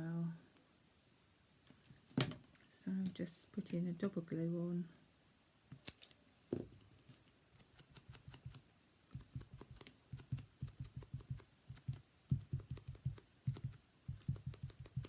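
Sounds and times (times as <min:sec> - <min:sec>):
sponge tapping on paper: 0:09.2 - 0:15.0.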